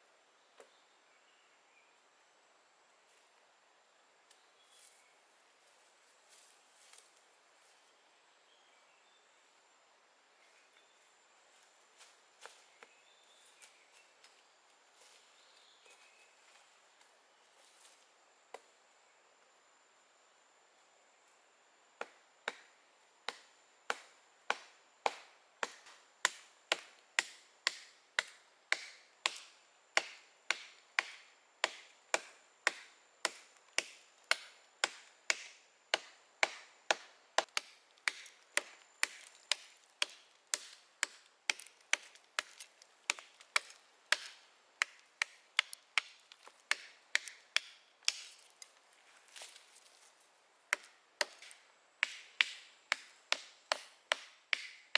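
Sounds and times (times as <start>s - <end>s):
blade chopping wood: 23.3s - 48.5s, 50.7s - 54.9s.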